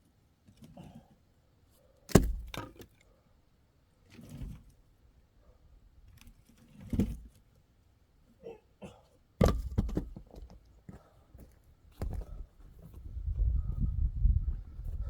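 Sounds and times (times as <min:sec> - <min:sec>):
axe chopping firewood: 0:02.1 - 0:02.9, 0:09.4 - 0:10.2.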